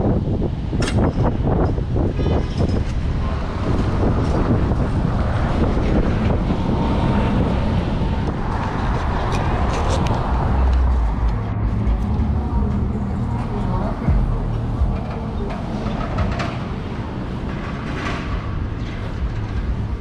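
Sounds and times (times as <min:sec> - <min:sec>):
road and traffic noise: 0:00.0 - 0:20.0
wind buffeting microphone: 0:00.0 - 0:20.0.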